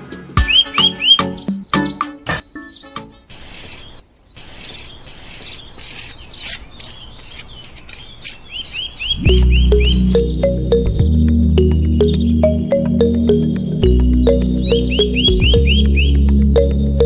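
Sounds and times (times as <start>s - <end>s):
birds chirping: 0.0s - 17.0s
faint scraping: 3.3s - 10.2s
music with heavy bass: 9.2s - 17.0s.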